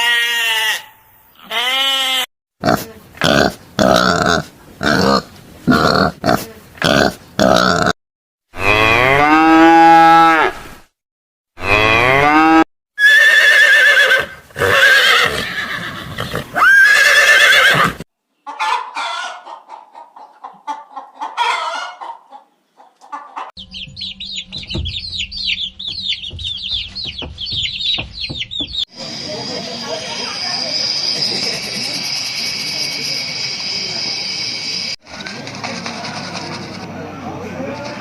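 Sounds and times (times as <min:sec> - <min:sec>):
chicken calls: 0:16.1 - 0:32.9
rapid high chirps: 0:23.6 - 0:35.0.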